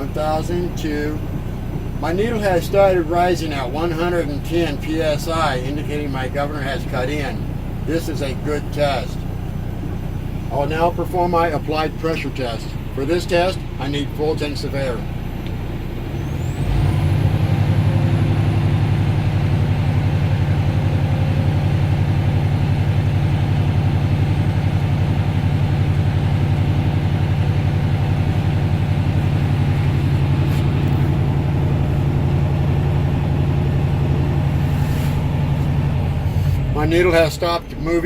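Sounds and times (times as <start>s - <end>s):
diesel truck engine running: 0.0s - 38.0s.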